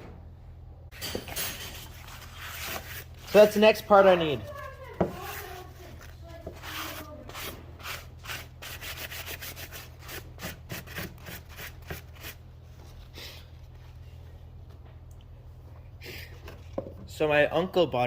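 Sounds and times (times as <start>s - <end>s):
steady low hum: 0.0s - 18.0s
rubbing strokes: 4.5s - 12.4s.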